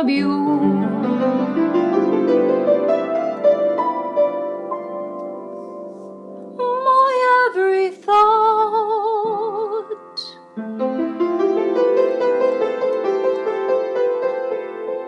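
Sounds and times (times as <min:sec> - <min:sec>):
woman singing with vibrato: 0:00.0 - 0:01.4, 0:06.6 - 0:10.4
soft keyboard chords: 0:09.7 - 0:15.0.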